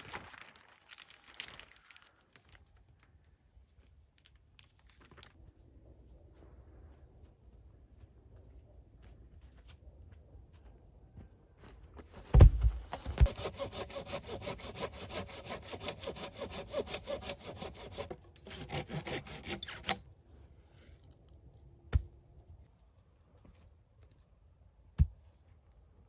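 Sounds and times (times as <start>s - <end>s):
hand saw cutting wood: 13.0s - 20.0s.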